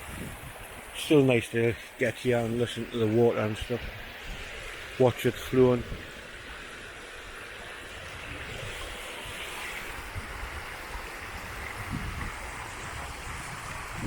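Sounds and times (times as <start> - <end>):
wind buffeting microphone: 0.0 - 1.0, 8.1 - 14.0
river water flowing: 0.0 - 14.0.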